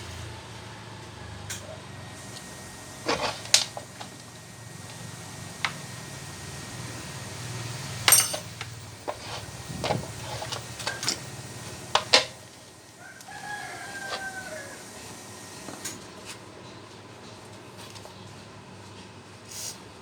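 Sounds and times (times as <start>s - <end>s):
knocks on metal parts: 8.1s - 8.8s
rooster crowing: 12.8s - 15.5s.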